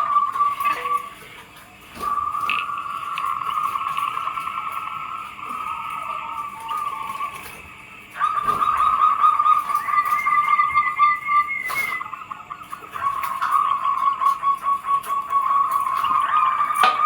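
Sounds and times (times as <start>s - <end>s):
higher-pitched bird notes: 0.0s - 1.4s, 5.5s - 17.0s
doves cooing: 0.0s - 17.0s.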